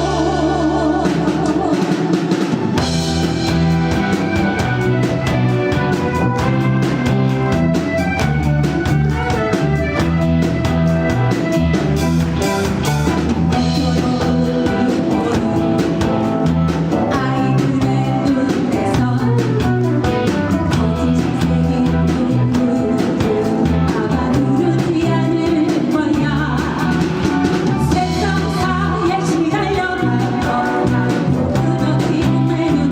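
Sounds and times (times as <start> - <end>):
person singing lead: 0.0 - 2.5, 13.5 - 16.4, 17.0 - 27.2
bass: 0.0 - 32.9
drum kit beat: 0.0 - 32.9
electric guitar: 0.0 - 32.9.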